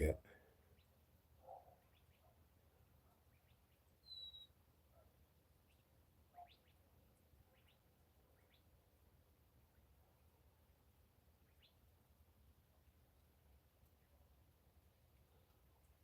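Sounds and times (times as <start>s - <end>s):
faint bird chirps: 0.6s - 9.0s, 11.4s - 12.0s
bird whistling: 4.0s - 4.5s.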